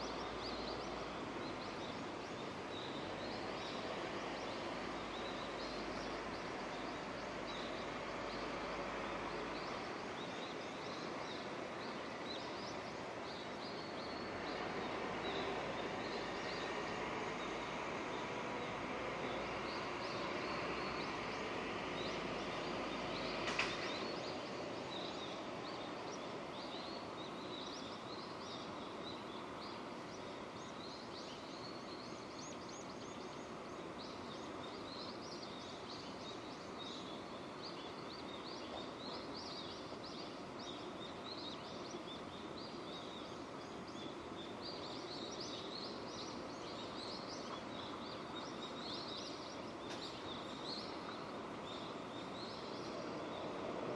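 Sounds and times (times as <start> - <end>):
small birds chirping: 0.0 - 53.9
steady rain falling: 0.1 - 28.5.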